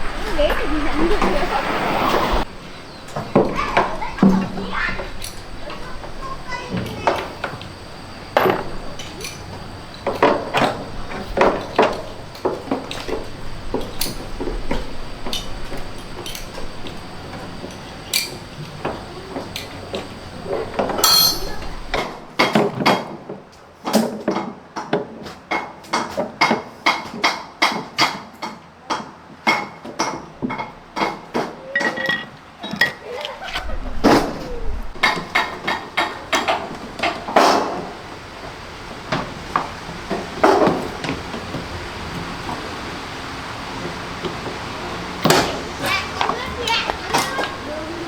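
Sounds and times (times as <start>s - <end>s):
hand tools clinking on metal: 8.3s - 22.0s.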